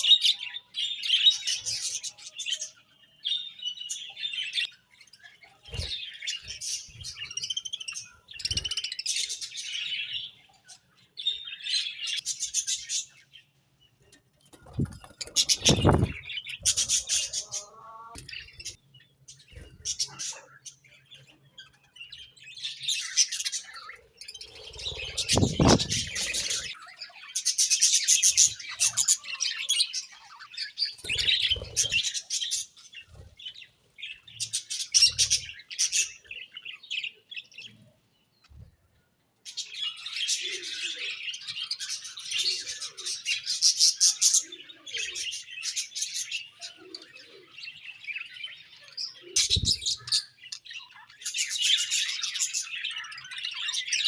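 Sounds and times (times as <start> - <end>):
budgerigars chirping: 23.2 - 26.8.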